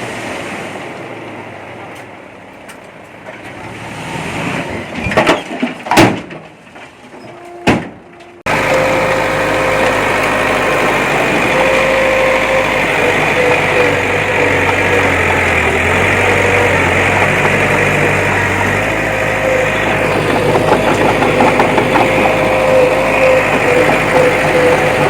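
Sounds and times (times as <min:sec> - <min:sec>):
heavy machinery engine running: 0:08.5 - 0:25.0.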